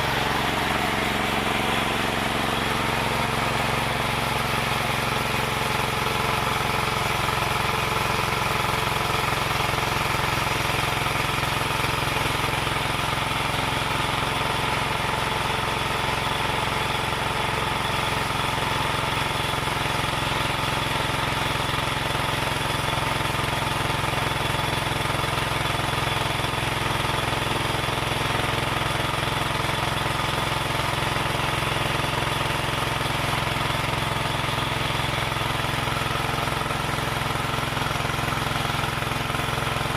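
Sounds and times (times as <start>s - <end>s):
motor-driven wood saw humming: 0.0s - 7.9s.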